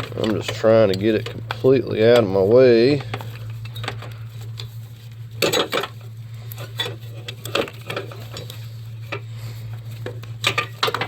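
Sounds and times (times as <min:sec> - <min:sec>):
steady low hum: 0:00.0 - 0:11.0
clicks and knocks of hard parts: 0:05.4 - 0:09.3, 0:10.0 - 0:11.0.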